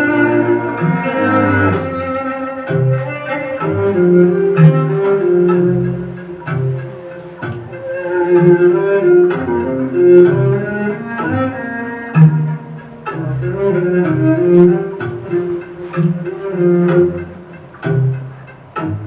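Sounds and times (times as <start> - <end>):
low sustained notes: 0.0 - 19.0.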